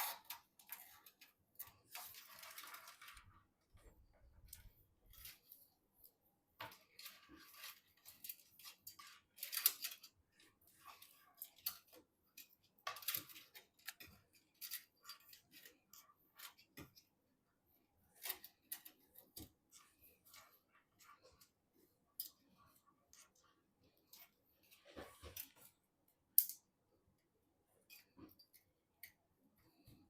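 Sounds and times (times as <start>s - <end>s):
computer parts clicking and scraping: 0.0s - 3.4s, 6.6s - 17.1s.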